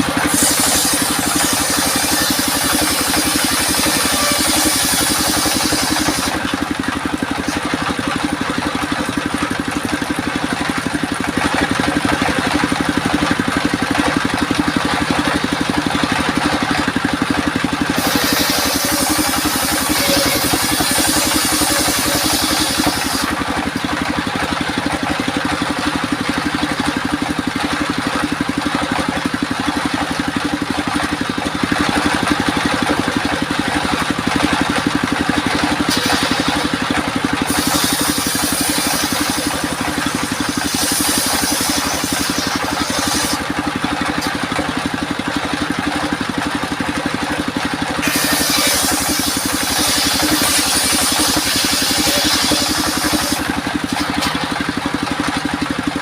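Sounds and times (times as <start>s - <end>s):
saw blade hissing through wood: 0.0s - 7.8s, 17.8s - 23.4s, 35.9s - 36.8s, 37.4s - 43.5s, 48.0s - 54.4s
circular saw machine running: 0.0s - 56.0s.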